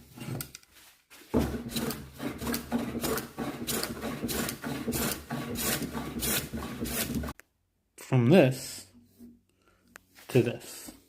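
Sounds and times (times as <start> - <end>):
hand plane scraping wood: 1.2 - 7.4.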